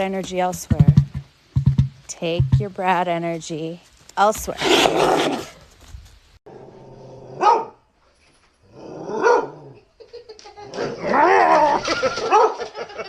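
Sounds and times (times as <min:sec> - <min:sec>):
dog barking: 0:07.4 - 0:07.8, 0:09.2 - 0:09.6, 0:12.2 - 0:12.7.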